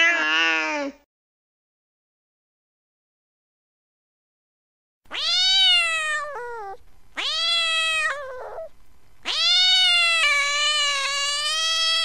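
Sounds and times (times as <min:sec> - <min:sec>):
cat meowing: 0:00.0 - 0:01.0, 0:05.1 - 0:12.0.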